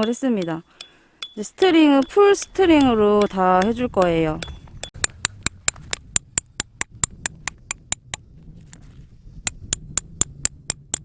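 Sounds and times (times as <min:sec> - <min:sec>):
hammer tapping metal peg: 0:00.0 - 0:08.2.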